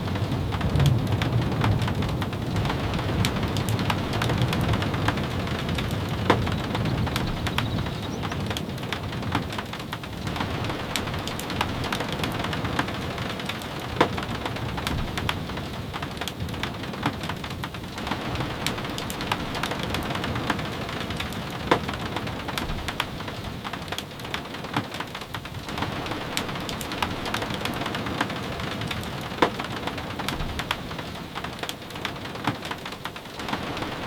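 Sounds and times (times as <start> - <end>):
steady rain falling: 0.0 - 34.0
wood fire crackling pops: 0.1 - 15.5.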